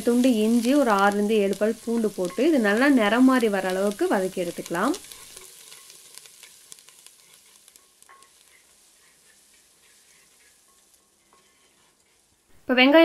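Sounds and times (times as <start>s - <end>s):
small crackles: 0.0s - 12.7s
food sizzling in oil: 0.0s - 13.0s
ladle stirring: 5.0s - 12.4s.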